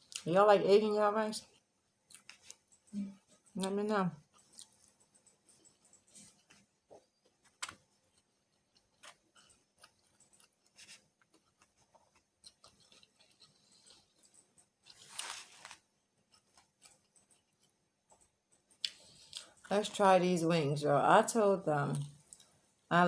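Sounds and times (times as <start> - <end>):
person chewing: 2.1 - 3.6, 4.2 - 17.8, 18.7 - 19.7
rustling noise: 4.4 - 17.0.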